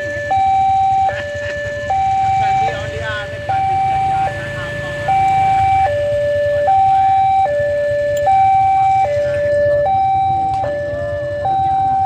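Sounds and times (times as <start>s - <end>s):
level crossing two-tone alarm: 0.0s - 12.0s.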